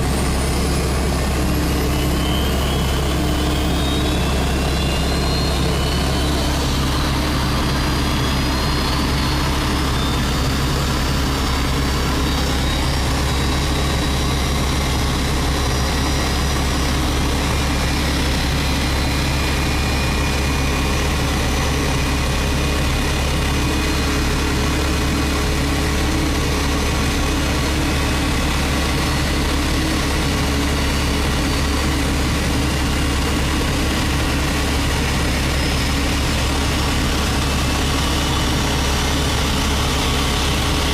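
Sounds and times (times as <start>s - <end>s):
faint high turbine whine: 0.0s - 40.9s
heavy engine drone: 0.0s - 40.9s.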